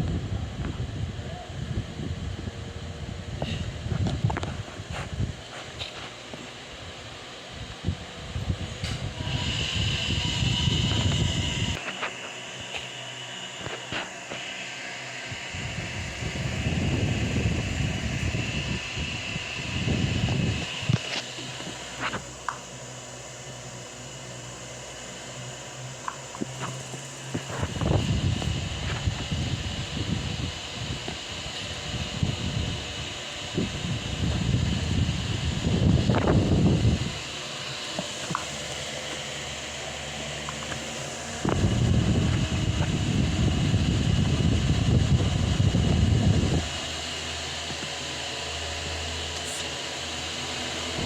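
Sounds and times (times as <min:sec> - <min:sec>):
wind buffeting microphone: 0:00.0 - 0:05.5, 0:07.5 - 0:11.8, 0:15.3 - 0:21.1, 0:27.3 - 0:37.3, 0:41.3 - 0:46.9
fan motor humming: 0:00.0 - 0:51.0.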